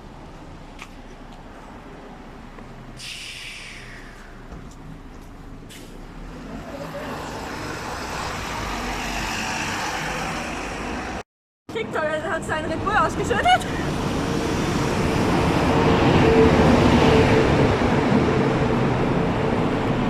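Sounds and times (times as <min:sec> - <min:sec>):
bus engine hum: 0:00.0 - 0:20.0
bus rolling noise: 0:00.0 - 0:20.0
air brakes hissing: 0:03.0 - 0:04.5, 0:05.7 - 0:06.0.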